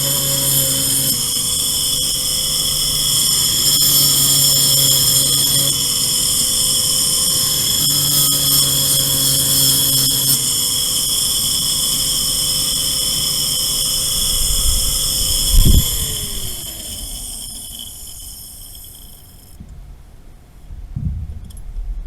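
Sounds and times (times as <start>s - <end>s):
electric motor whining: 0.0s - 19.6s
loud thump: 21.0s - 22.0s.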